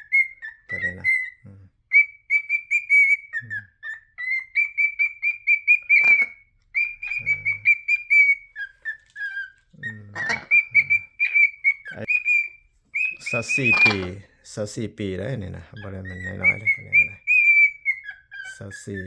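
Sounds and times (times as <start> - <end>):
pet bird whistling: 0.0 - 14.2, 15.8 - 19.0.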